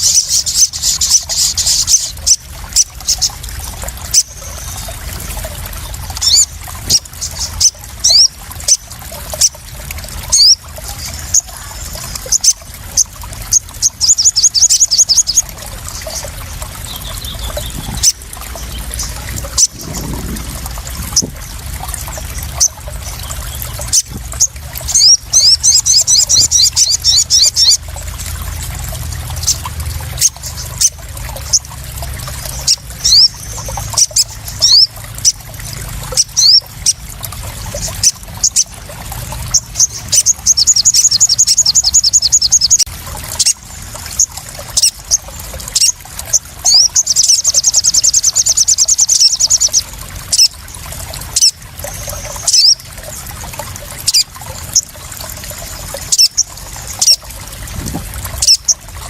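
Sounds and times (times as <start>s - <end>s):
water splashing and trickling: 0.0s - 59.0s
small songbird chirping and trilling: 13.5s - 20.5s, 22.6s - 27.8s, 39.5s - 43.6s, 46.6s - 50.5s.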